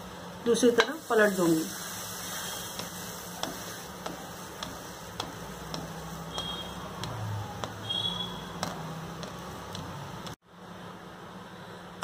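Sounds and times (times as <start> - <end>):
sandwich sizzling on a pan: 1.0 - 10.4
steady ticking: 2.8 - 10.4.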